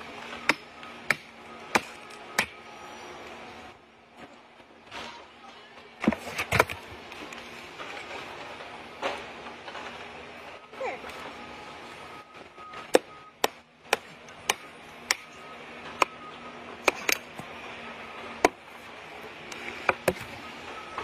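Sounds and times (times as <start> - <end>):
axe chopping wood: 0.4 - 2.6, 12.9 - 15.3, 16.8 - 17.4, 18.4 - 18.6, 19.9 - 20.3.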